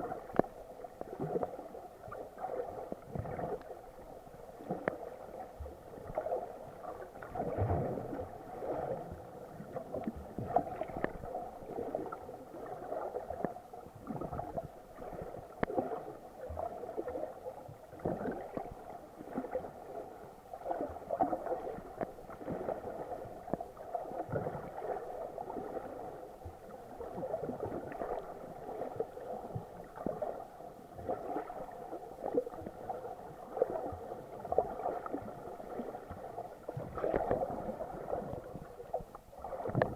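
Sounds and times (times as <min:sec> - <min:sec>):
muffled water sloshing underwater: 0:00.0 - 0:39.9
faint clicks: 0:00.3 - 0:00.6, 0:11.0 - 0:11.2.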